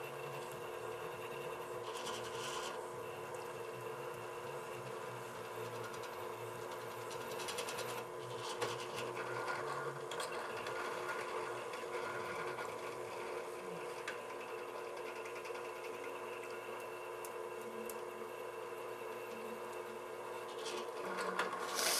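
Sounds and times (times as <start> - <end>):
brief scrapes and clicks: 21.6 - 21.9.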